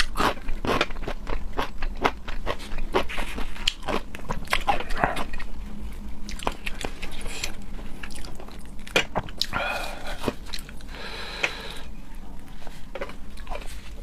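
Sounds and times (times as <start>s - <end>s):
person chewing and biting food: 0.0s - 5.6s, 6.2s - 10.9s.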